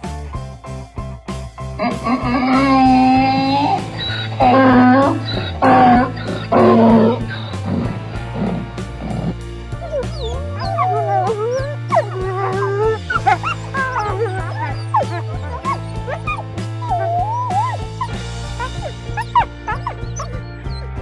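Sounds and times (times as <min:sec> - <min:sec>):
background music with steady beat: 0:00.0 - 0:21.0.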